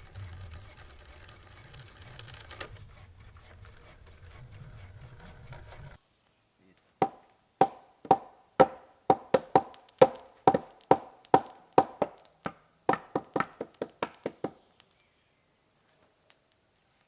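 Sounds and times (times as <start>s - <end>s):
hand tool knocking on wood: 7.0s - 12.2s, 12.9s - 14.6s.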